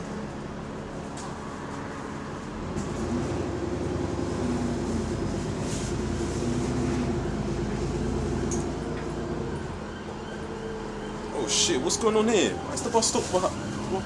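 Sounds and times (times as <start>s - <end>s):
bus engine and exhaust: 0.0s - 14.0s.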